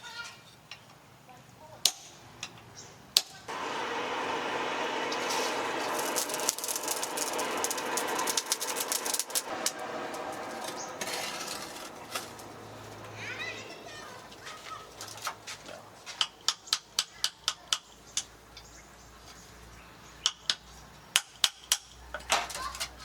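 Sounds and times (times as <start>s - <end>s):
power tool grinding metal: 3.5s - 13.2s.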